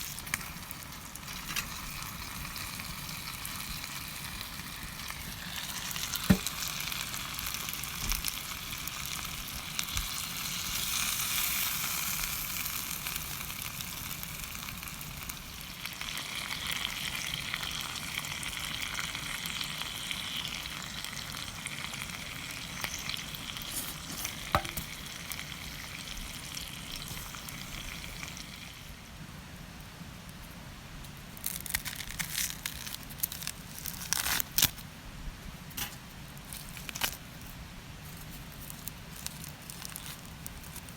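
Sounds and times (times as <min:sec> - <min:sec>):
food sizzling in skillet: 0:00.0 - 0:29.0.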